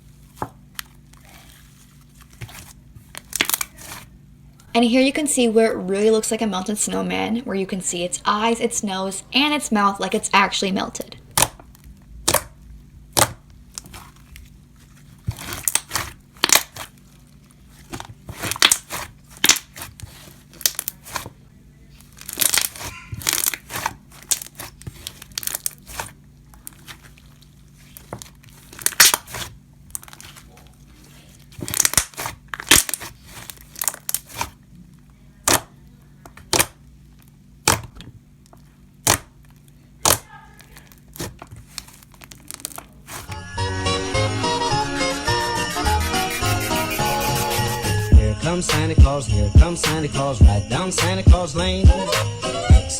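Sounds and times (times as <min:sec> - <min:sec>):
slime squishing and popping: 0:02.4 - 0:04.1, 0:11.3 - 0:21.4, 0:22.0 - 0:30.5, 0:31.4 - 0:34.6, 0:35.4 - 0:36.8, 0:37.6 - 0:43.4.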